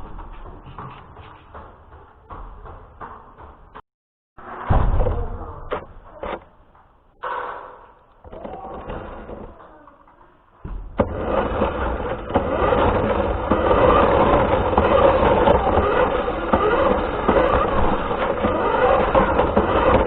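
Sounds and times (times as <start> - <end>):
toy car motor and wheels rumbling: 8.2 - 20.0.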